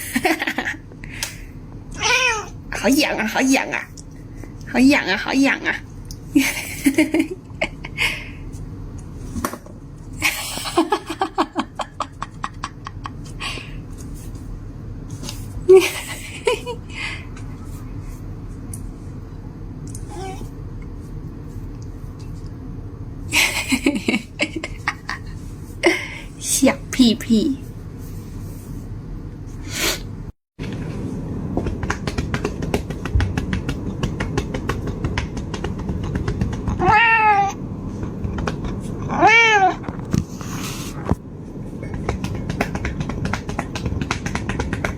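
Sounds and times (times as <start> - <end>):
person laughing: 10.2 - 13.6, 15.7 - 17.0, 23.3 - 26.2.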